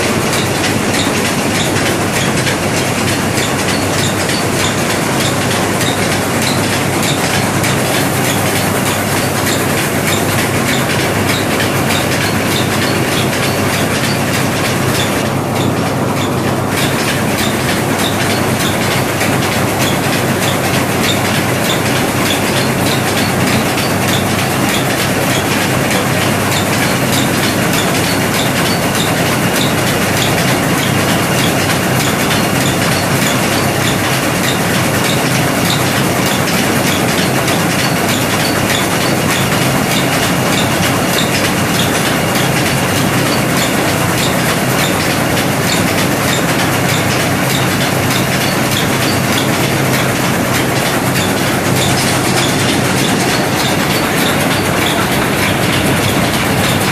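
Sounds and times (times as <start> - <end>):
regular clicking: 0.0 - 56.9
rice milling machine rattling: 0.0 - 56.9.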